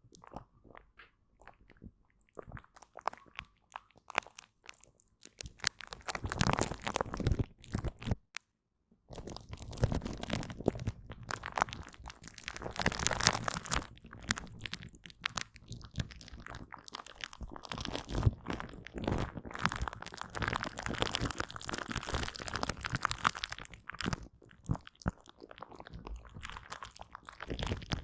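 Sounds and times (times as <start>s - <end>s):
sticky wet gel squishing: 0.0s - 8.2s, 9.1s - 28.0s.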